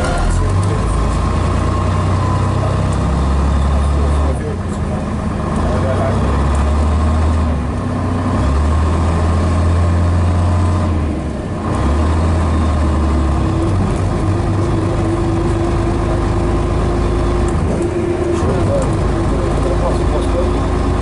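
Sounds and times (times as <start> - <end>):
bus diesel engine running: 0.0 - 21.0
steady whine: 13.8 - 21.0.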